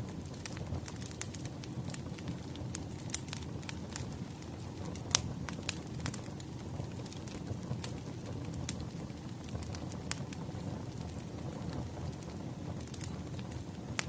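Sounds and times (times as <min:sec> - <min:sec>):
low rumble of burning logs: 0:00.0 - 0:14.0
wood fire crackling: 0:00.0 - 0:14.0.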